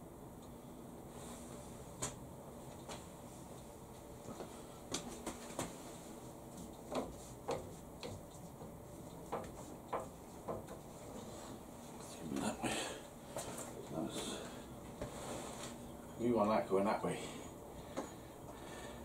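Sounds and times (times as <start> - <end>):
light clicks and knocks: 6.6 - 10.9.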